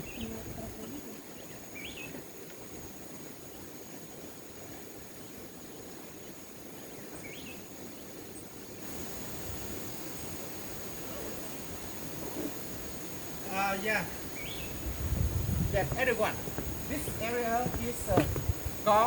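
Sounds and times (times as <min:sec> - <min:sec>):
bird chirp: 0:00.0 - 0:00.4, 0:01.3 - 0:02.2, 0:14.1 - 0:19.0
background hiss: 0:00.0 - 0:19.0
insect drone: 0:00.0 - 0:19.0.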